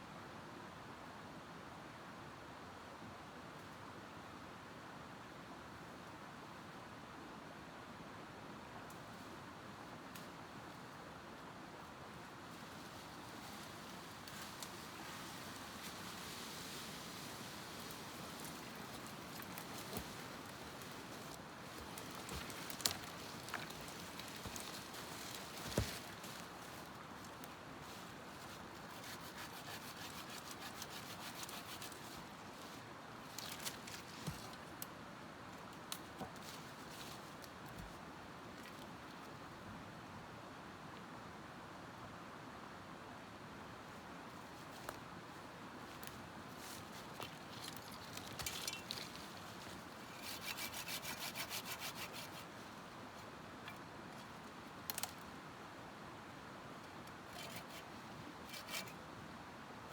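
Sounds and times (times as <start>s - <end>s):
hand saw cutting wood: 28.9s - 32.0s, 50.1s - 52.5s, 57.3s - 59.0s
scraping and rubbing on wood: 50.0s - 52.5s, 57.3s - 59.0s.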